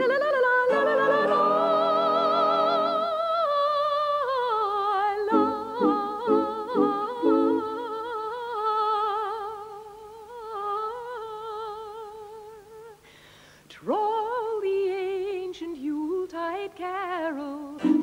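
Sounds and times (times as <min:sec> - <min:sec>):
high voice singing with vibrato: 0:00.0 - 0:13.0, 0:17.4 - 0:18.0
lower voices singing staccato: 0:00.7 - 0:03.2, 0:05.3 - 0:07.8, 0:17.8 - 0:18.0.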